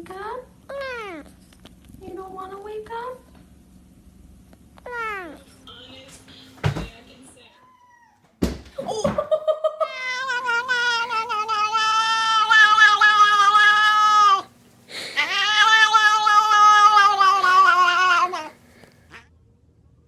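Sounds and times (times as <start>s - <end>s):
cat yowling: 7.6s - 8.2s, 9.8s - 19.2s.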